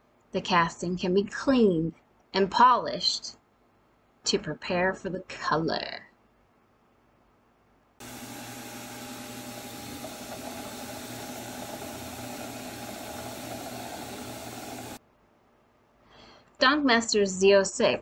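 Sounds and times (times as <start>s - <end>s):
polishing machine hissing: 8.0s - 15.0s.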